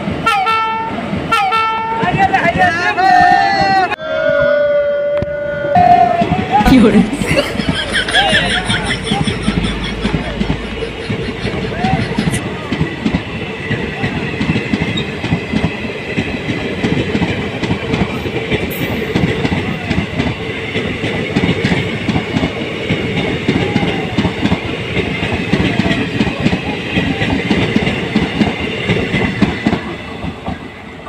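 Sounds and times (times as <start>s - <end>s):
low train rumble: 0.0s - 31.0s
train wheels clattering over rail joints: 7.6s - 30.7s.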